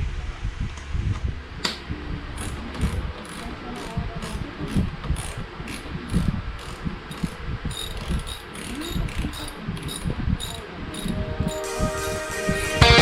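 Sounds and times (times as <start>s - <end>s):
mechanical ratchet clicking: 2.4s - 11.2s.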